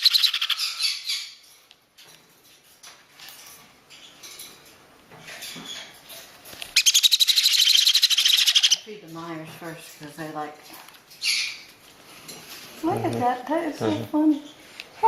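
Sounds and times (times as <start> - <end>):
parrot chicks chirping: 0.0 - 15.0
rapid pulsing begging call: 6.8 - 8.8.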